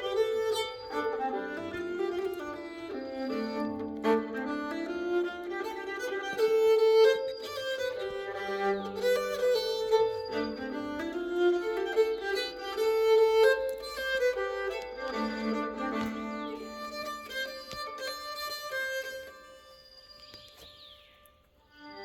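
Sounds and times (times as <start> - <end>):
keyed fiddle playing folk tune: 0.0 - 22.0.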